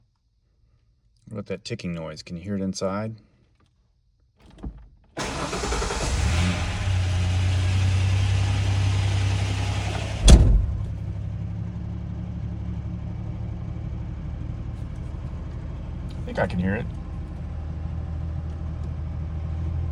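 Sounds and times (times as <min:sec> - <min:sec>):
car engine starting and idling: 0:05.2 - 0:19.9
sharp thump: 0:09.6 - 0:11.2.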